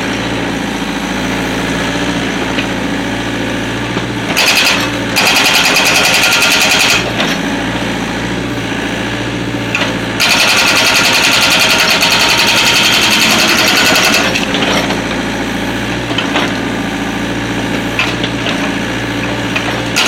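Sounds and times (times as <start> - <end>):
diesel engine running: 0.0 - 20.0
hydraulic breaker hammering: 4.2 - 7.4, 9.7 - 15.2, 19.4 - 20.0.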